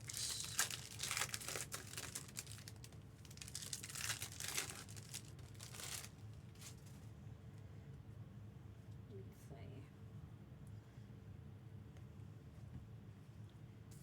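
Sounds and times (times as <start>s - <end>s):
plastic and foil crinkling: 0.0s - 7.0s.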